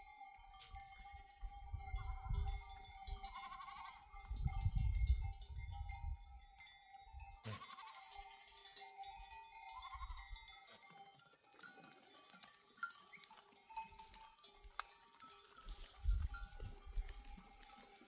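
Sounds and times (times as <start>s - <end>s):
bells clinking: 0.0s - 18.0s
wind rumble on microphone: 1.4s - 3.4s, 4.2s - 6.4s, 16.0s - 17.4s
sheep bleating: 3.3s - 4.0s, 7.5s - 8.1s.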